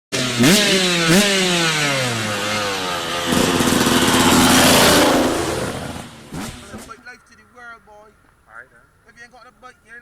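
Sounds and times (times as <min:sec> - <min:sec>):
dirt bike engine revving: 0:00.1 - 0:07.0.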